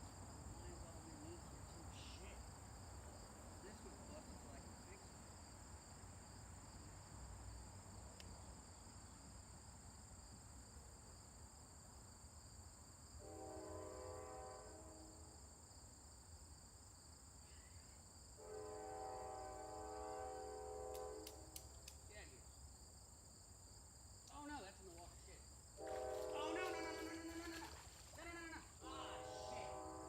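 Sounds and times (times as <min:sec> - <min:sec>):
high insect drone: 0:00.0 - 0:30.0
distant train horn blasts: 0:13.2 - 0:15.4, 0:18.4 - 0:21.6, 0:25.8 - 0:27.4, 0:28.8 - 0:30.0.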